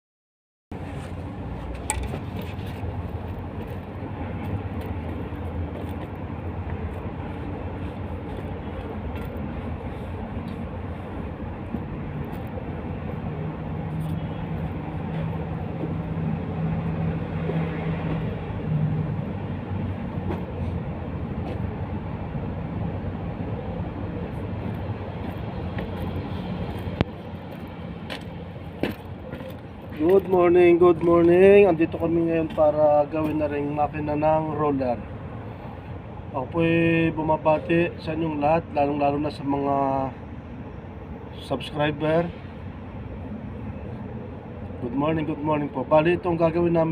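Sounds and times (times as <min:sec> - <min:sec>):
engine low drone: 0:00.7 - 0:46.9.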